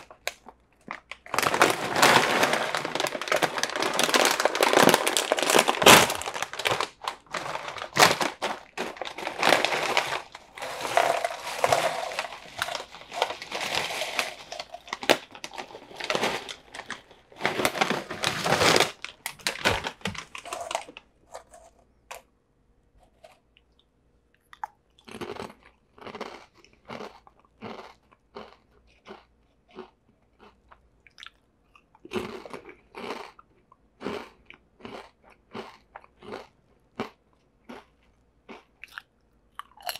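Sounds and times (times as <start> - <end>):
crisp crunches: 0.0 - 21.7
snack bag crinkling: 0.0 - 21.8
chips shaken onto a tray: 5.7 - 21.6.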